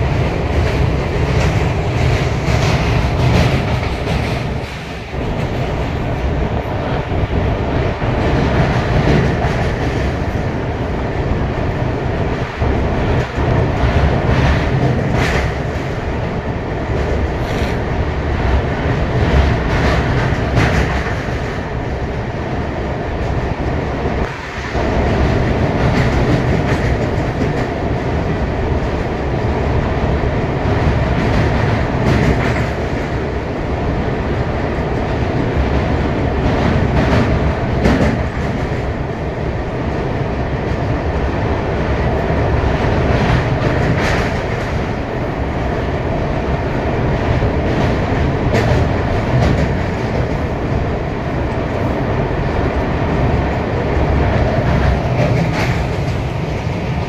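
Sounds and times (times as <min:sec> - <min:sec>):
train wheels rumbling on rails: 0:00.0 - 0:57.0
knocks at rail joints: 0:36.5 - 0:38.8.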